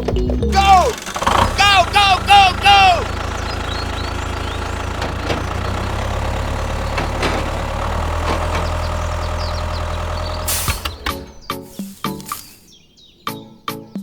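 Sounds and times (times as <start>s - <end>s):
tractor engine running: 0.0s - 13.6s
short clicks: 4.7s - 12.7s.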